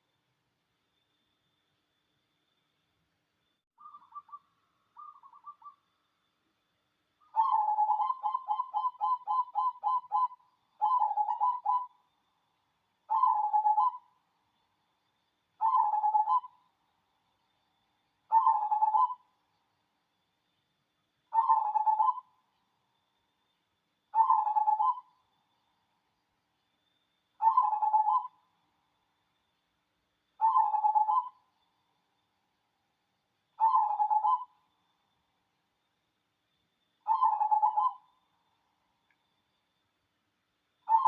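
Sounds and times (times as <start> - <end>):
dove cooing: 7.3 - 11.9, 13.1 - 14.0, 15.6 - 16.6, 18.3 - 19.2, 21.3 - 22.3, 24.2 - 25.1, 27.4 - 28.4, 30.4 - 31.4, 33.6 - 34.5, 37.1 - 38.0.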